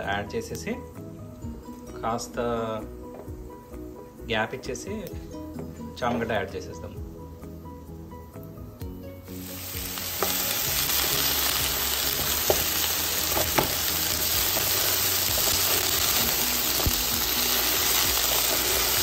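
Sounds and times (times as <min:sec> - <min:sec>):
frying sizzle: 0:09.2 - 0:19.0.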